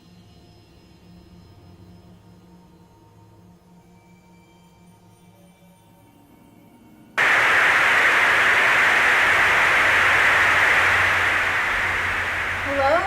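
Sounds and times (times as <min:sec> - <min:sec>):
loud static hiss: 0:07.2 - 0:13.0.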